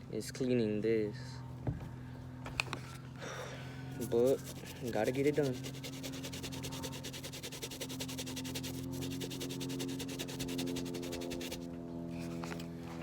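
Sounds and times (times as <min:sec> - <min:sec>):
low hum: 0:01.9 - 0:13.0
brush scrubbing sneaker: 0:03.9 - 0:12.4.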